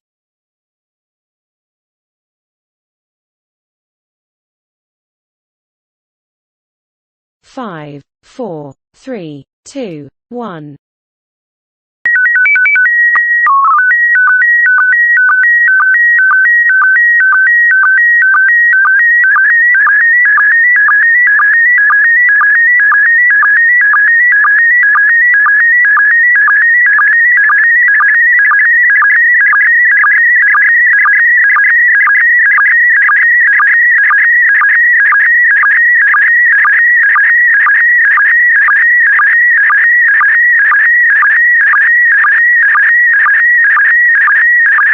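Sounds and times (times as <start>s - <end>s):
quick alternating beeps: 12.1s - 44.9s.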